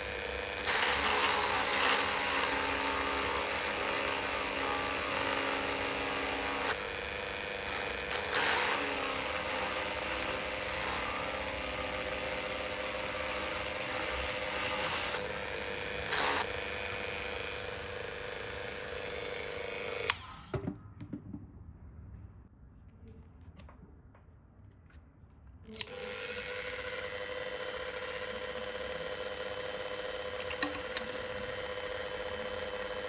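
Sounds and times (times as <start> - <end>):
rotary tool drilling shell: 0.0 - 20.5, 25.7 - 33.0.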